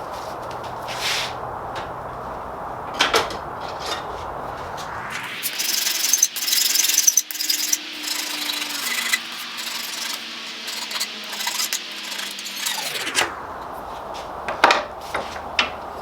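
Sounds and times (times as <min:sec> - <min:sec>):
tool rasping on a part: 0:06.6 - 0:12.8.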